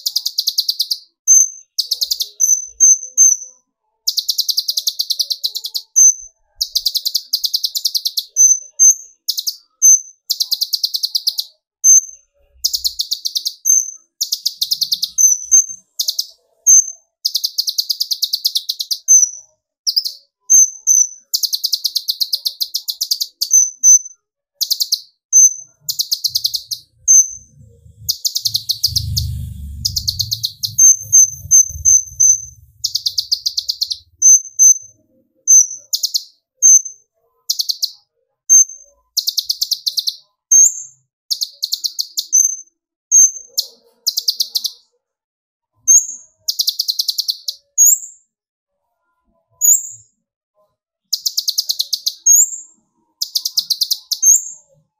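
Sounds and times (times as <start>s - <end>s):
sunbird singing: 24.6s - 34.9s
low rumble: 26.8s - 34.2s.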